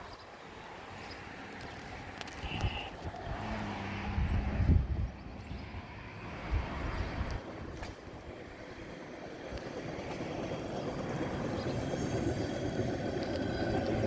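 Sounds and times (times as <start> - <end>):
rail truck rumbling on track: 0.0 - 14.0.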